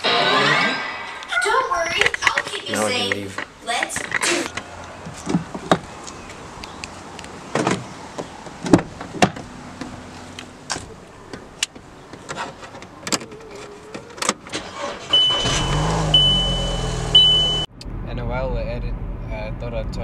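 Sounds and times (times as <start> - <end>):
car engine starting and idling: 1.7 - 19.9
knocks and clicks getting into car: 4.0 - 5.9, 7.5 - 9.9
high dashboard warning tone: 14.7 - 17.7.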